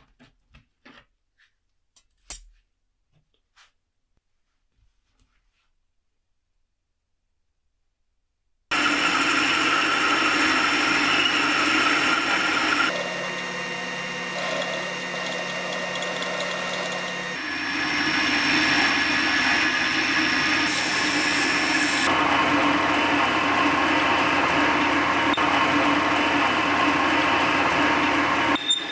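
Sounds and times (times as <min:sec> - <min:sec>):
workshop power tools running: 0:08.8 - 0:17.4.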